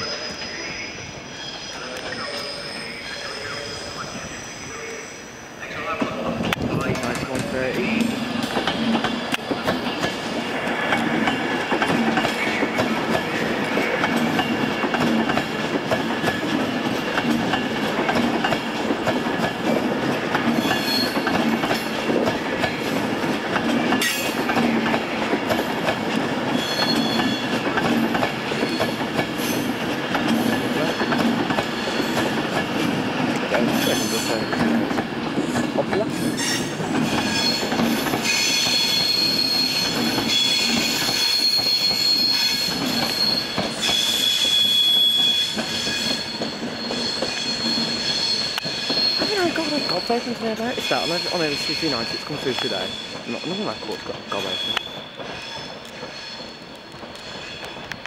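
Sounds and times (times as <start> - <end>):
train wheels rumbling on rail: 0.0 - 58.0
high-pitched wheel squeal: 20.6 - 21.3, 26.5 - 27.5, 36.4 - 56.6.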